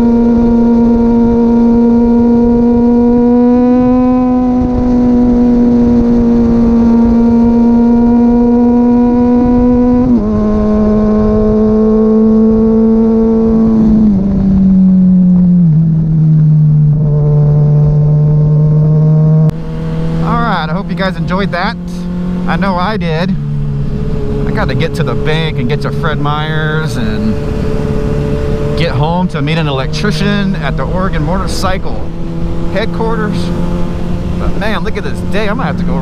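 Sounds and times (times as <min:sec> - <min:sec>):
motorcycle engine shifting gears: 0:00.0 - 0:36.0.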